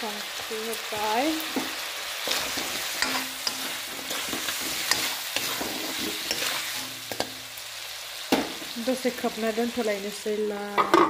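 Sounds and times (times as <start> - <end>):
chicken sizzling in oil: 0.0 - 10.8
steel spoon scraping wok: 1.4 - 7.6.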